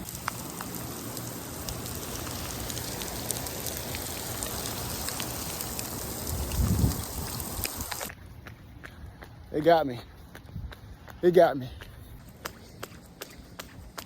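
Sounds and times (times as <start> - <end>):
heavy rain pouring: 0.0 - 8.1
raindrops ticking close: 0.0 - 8.1.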